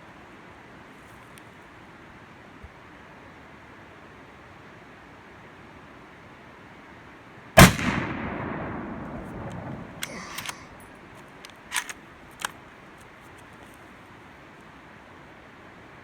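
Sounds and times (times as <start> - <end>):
gunshot: 7.6 - 10.8
faint metallic clicks: 9.1 - 13.8
metal clink: 9.5 - 11.0.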